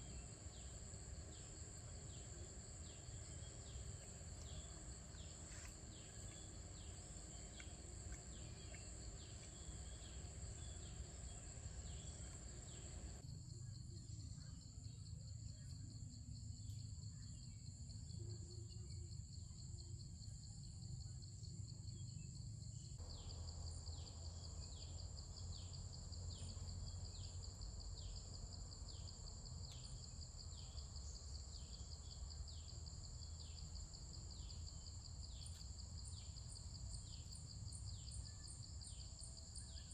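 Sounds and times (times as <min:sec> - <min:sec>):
insects chirring: 0:00.0 - 0:13.2, 0:23.0 - 0:39.9
low steady hum: 0:00.0 - 0:13.2.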